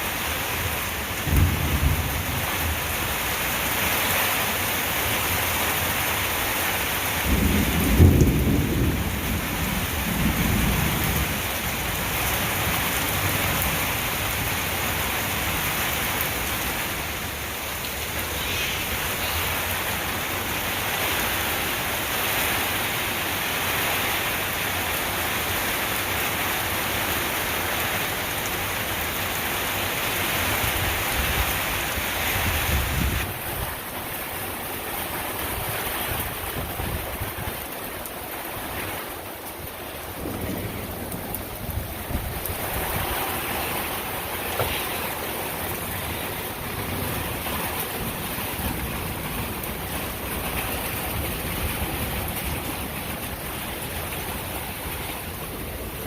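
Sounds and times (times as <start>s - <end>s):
heavy rain falling: 0.0s - 56.0s
thunder rolling: 1.2s - 2.8s, 7.3s - 11.4s, 40.0s - 45.4s.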